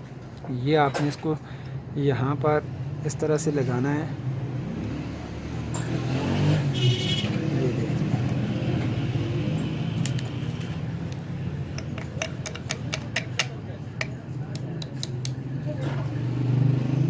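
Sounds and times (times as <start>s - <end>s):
small metal parts clicking: 11.1s - 15.4s.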